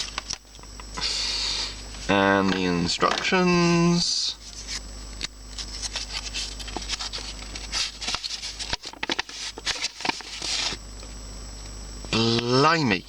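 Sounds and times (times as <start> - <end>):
packaging rustling and crinkling: 5.5 - 10.8.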